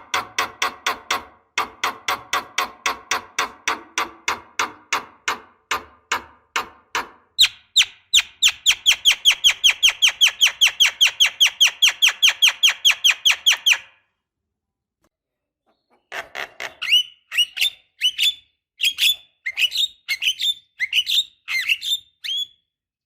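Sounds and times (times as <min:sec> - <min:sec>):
higher falling bird chirps: 0:07.4 - 0:14.0.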